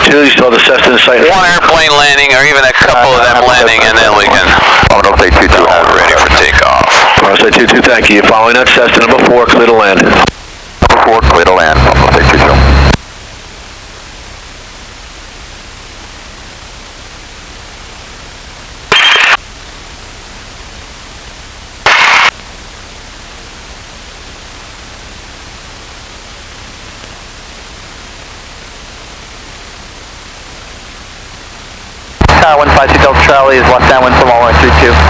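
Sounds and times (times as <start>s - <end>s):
radio static hiss: 0.0s - 35.0s
short loud radio burst: 18.9s - 19.4s, 21.8s - 22.3s.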